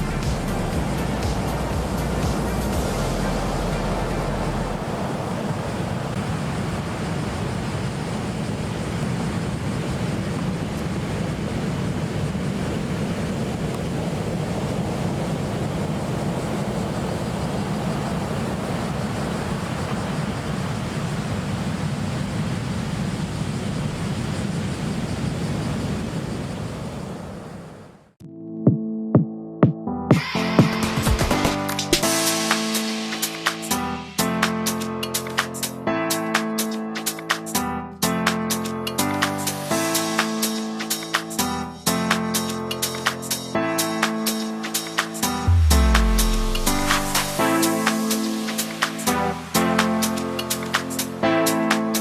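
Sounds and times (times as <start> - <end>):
ocean surf breaking: 0.0 - 24.0, 30.2 - 52.0
wind buffeting microphone: 0.0 - 27.9.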